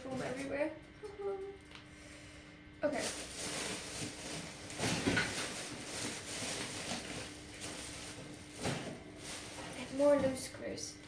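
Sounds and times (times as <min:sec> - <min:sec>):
styrofoam and plastic crinkling: 0:02.8 - 0:10.7.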